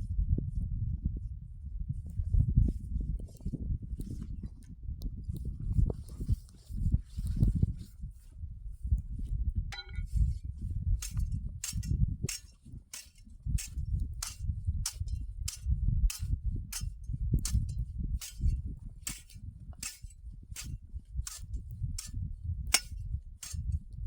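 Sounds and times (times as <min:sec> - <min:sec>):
low rumble: 0:08.7 - 0:24.0.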